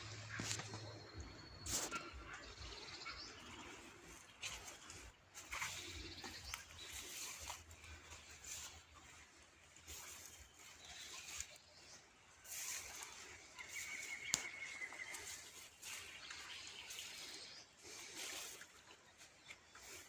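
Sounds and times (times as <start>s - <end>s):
songbirds chirping and twittering: 0.0s - 20.0s.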